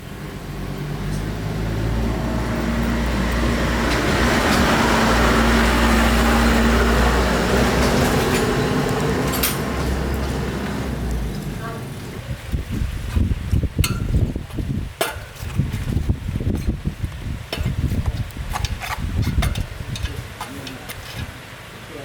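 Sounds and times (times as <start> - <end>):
vehicle engine: 0.0 - 14.4
road noise: 0.0 - 22.0.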